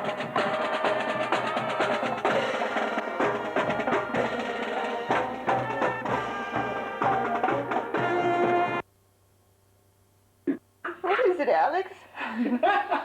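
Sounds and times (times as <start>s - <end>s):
marching band playing: 0.0s - 8.8s
rapid snare drumming: 0.0s - 8.8s.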